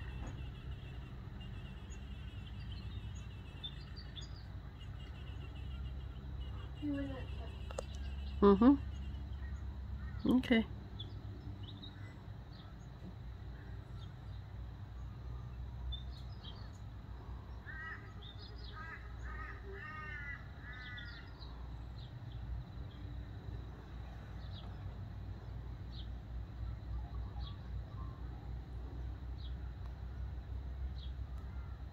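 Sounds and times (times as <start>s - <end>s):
bird calling: 0.0s - 14.3s, 16.0s - 21.8s
small birds chirping: 0.0s - 31.9s.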